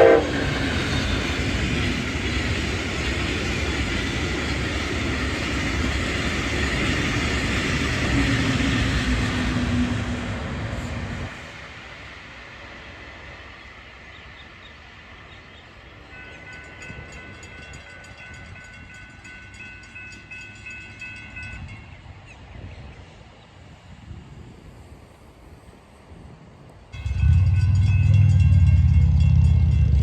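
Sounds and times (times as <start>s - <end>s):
train rumbling on track: 0.0s - 30.0s
steady ringing: 27.0s - 30.0s.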